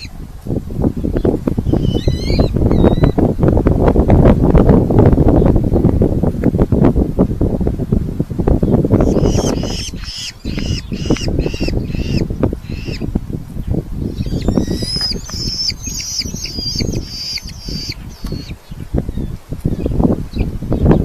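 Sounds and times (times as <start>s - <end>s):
falcons calling: 9.0s - 13.1s, 14.2s - 18.6s.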